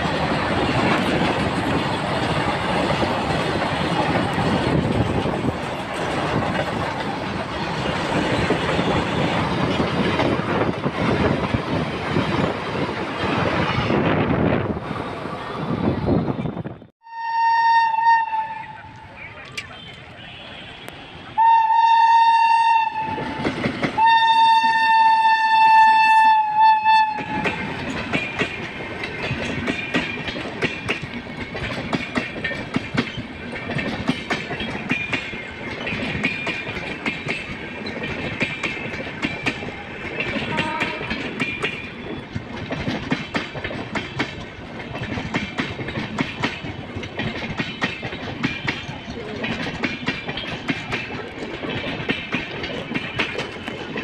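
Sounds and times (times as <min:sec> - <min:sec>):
train wheels clickety-clack: 0:00.0 - 0:16.8, 0:18.9 - 0:54.0
train horn blasts: 0:17.0 - 0:19.1, 0:19.8 - 0:23.4, 0:24.0 - 0:27.6, 0:40.4 - 0:41.2.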